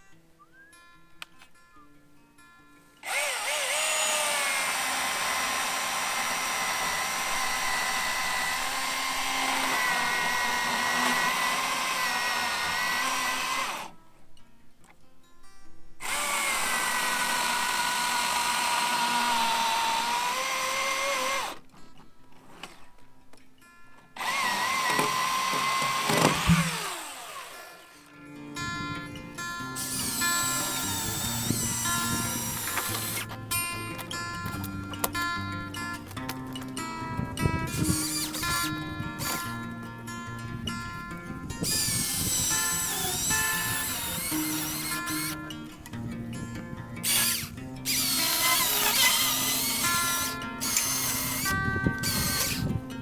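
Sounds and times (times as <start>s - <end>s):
electric chainsaw cutting log: 3.0s - 14.0s, 16.0s - 21.7s, 24.2s - 53.0s.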